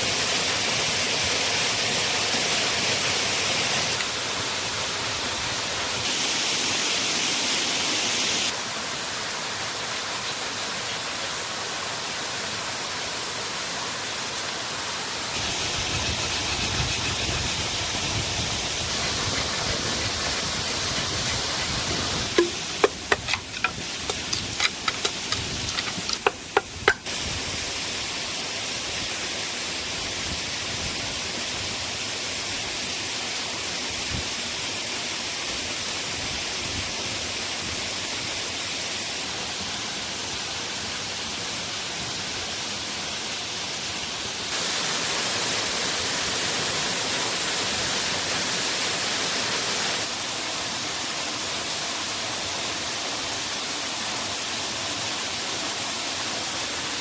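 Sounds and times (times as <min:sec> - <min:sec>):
waterfall rushing: 0:00.0 - 0:30.0, 0:38.5 - 0:57.0
sharp knocks or clicks: 0:22.3 - 0:27.1.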